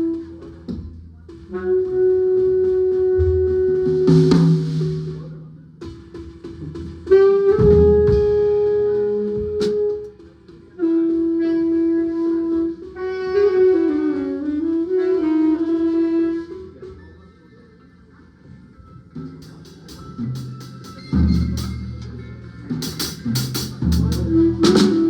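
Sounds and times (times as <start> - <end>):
saxophone playing long notes: 7.1 - 10.1, 10.8 - 16.7, 24.1 - 25.0
drum hits: 19.3 - 25.0.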